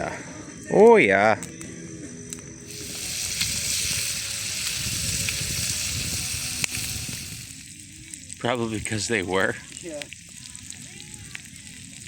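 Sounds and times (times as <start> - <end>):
food frying in a pan: 2.7 - 12.0.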